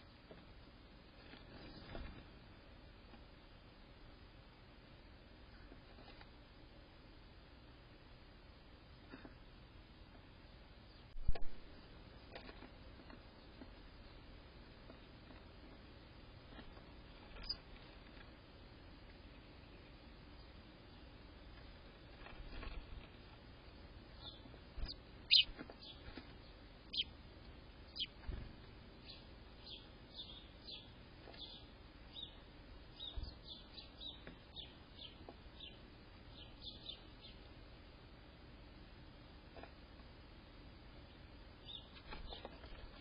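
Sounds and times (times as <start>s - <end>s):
faint steady hiss: 0.0s - 43.0s
small birds chirping: 8.8s - 39.9s, 40.7s - 43.0s.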